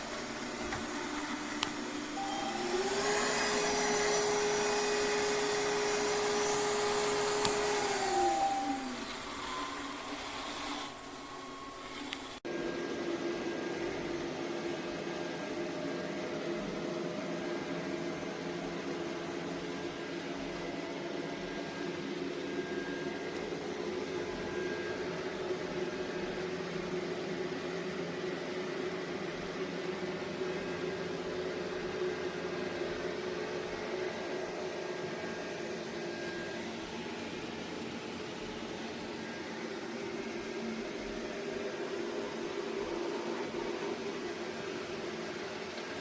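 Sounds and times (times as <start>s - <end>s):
robot vacuum running: 0.0s - 12.4s.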